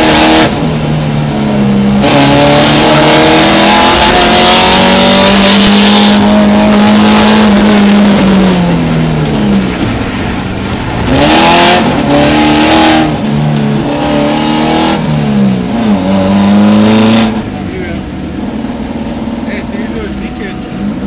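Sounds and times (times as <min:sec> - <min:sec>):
car engine revving through upshifts: 0:00.0 - 0:09.0, 0:11.0 - 0:17.5.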